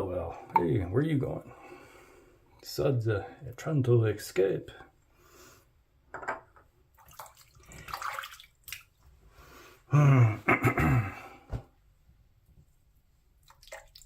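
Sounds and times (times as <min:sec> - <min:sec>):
water splashing: 0:07.0 - 0:09.0.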